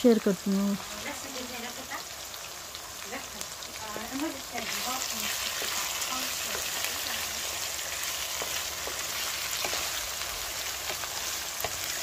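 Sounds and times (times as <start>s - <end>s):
meat sizzling in metal pan: 0.0s - 12.0s
spatula scraping and clicking: 8.3s - 12.0s.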